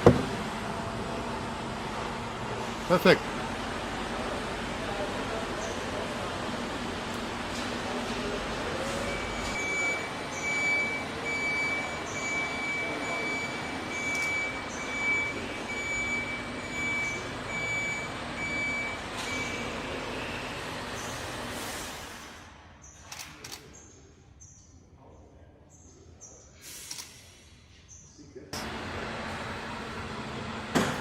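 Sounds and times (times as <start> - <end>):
electronic warning beeper: 8.9 - 19.8
factory noise hiss: 20.0 - 22.6.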